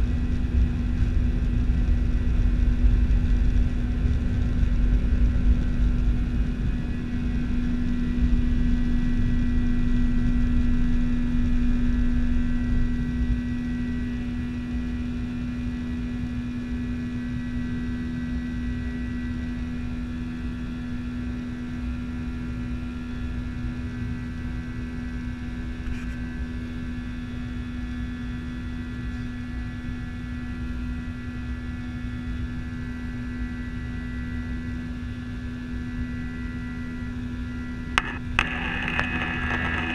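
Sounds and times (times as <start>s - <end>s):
jet engines humming and whining: 24.8s - 39.9s.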